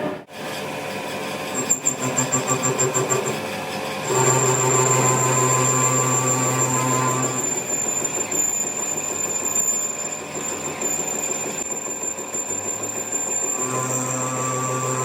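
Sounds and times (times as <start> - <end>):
machine humming with whine: 4.1 - 9.9, 13.2 - 15.0
machine pulsing: 13.0 - 15.0.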